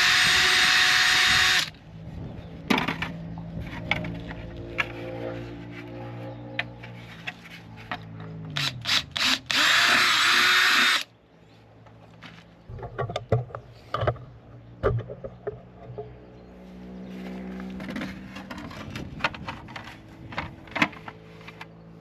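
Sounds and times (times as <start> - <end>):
power drill drilling: 0.0 - 1.7, 8.6 - 11.1.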